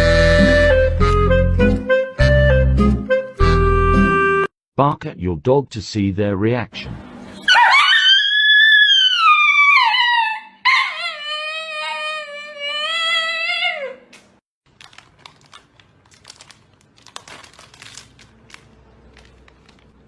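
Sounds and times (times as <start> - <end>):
dog howling: 7.5 - 14.1.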